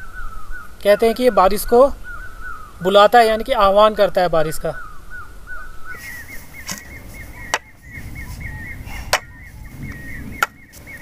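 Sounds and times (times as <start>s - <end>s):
bird calling repeated note: 4.6s - 11.0s.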